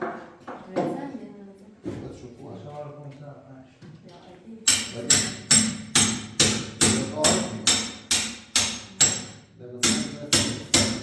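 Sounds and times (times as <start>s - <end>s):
ringing hammer-like knocking: 4.7s - 11.0s.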